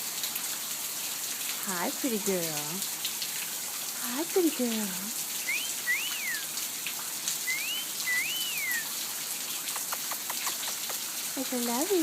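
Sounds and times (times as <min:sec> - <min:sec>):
rain patter: 0:00.0 - 0:12.0
two-part rising whistle: 0:05.4 - 0:06.5, 0:07.5 - 0:08.9.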